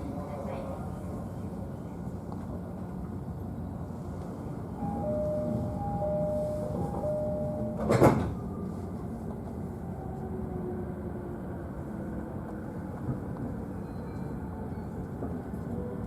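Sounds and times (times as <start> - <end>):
train interior noise: 0.0 - 16.0
faint tone: 4.8 - 8.0
train doors shutting thud: 4.8 - 8.5.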